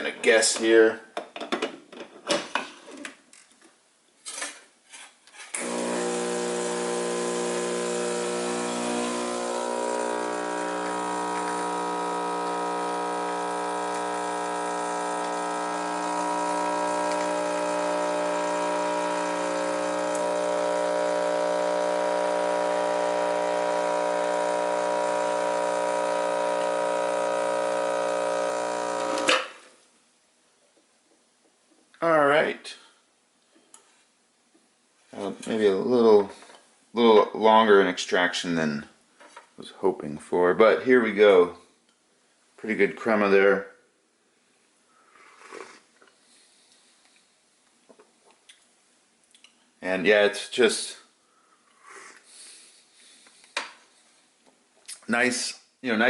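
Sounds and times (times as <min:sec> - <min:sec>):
espresso machine pump humming: 0:05.6 - 0:29.4.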